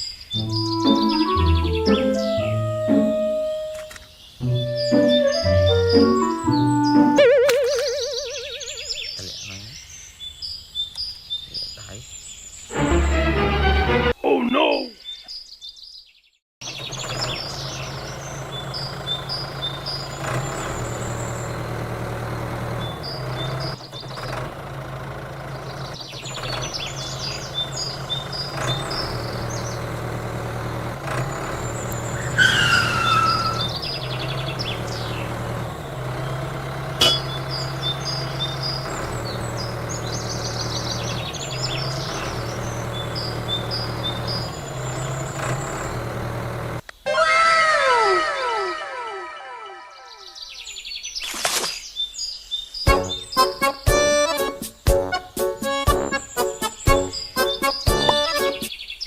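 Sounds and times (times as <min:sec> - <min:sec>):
birds chirping: 0:00.0 - 0:59.0
small diesel engine droning: 0:00.3 - 0:09.7, 0:12.7 - 0:14.2, 0:16.6 - 0:50.5, 0:52.9 - 0:58.7
sharp click: 0:03.7 - 0:04.1.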